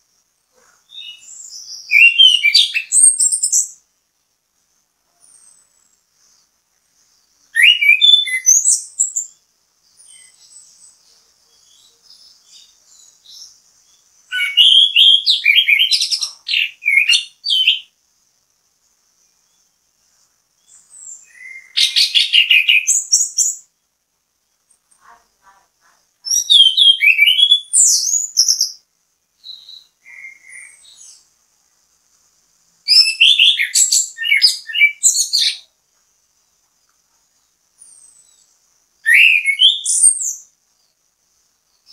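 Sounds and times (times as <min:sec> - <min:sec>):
faint bird twittering: 0:00.5 - 0:03.9, 0:05.1 - 0:18.0, 0:19.0 - 0:23.8, 0:24.5 - 0:28.8, 0:29.4 - 0:31.4, 0:32.9 - 0:35.8, 0:37.2 - 0:41.9
bird warbling song: 0:00.6 - 0:03.8, 0:07.2 - 0:17.9, 0:20.6 - 0:23.7, 0:26.2 - 0:28.8, 0:29.4 - 0:31.3, 0:32.9 - 0:35.7, 0:37.8 - 0:41.0.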